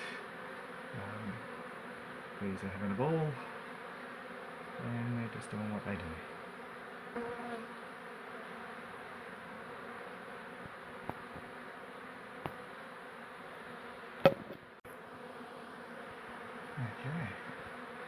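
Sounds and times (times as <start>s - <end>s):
honeybees buzzing: 0.0s - 18.0s
sharp knock: 14.2s - 14.6s.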